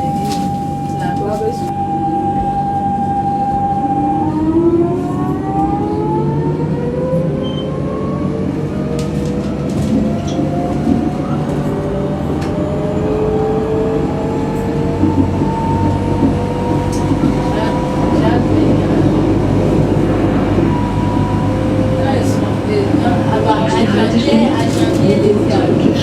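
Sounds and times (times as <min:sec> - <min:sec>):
tram motors whining: 0:00.0 - 0:26.0
wheels rumbling on rails: 0:00.0 - 0:26.0
rail clicks: 0:08.7 - 0:26.0.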